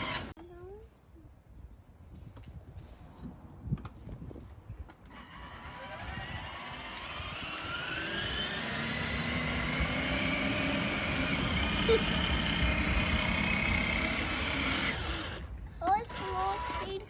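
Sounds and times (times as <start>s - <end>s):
aircraft engine approaching: 5.2s - 15.5s.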